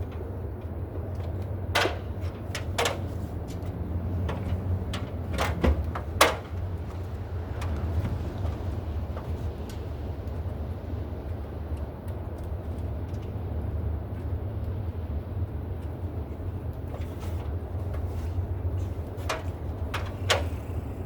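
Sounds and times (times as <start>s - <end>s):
sharp clicks and knocks: 0.0s - 10.4s, 16.7s - 20.8s.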